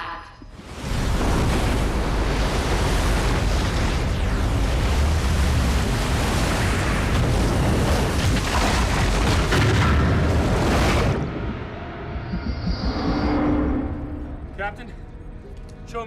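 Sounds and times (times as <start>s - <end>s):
deep rushing roar of water: 0.5s - 11.7s.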